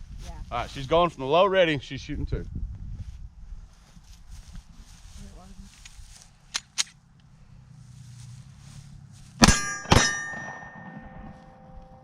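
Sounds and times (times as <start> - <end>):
pistol shots: 9.4 - 11.1
ringing metallic tone: 9.4 - 12.0.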